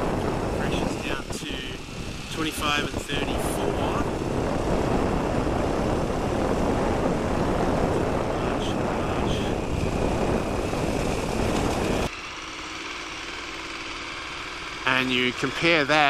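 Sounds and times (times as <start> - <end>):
wind noise on microphone: 0.0 - 12.1.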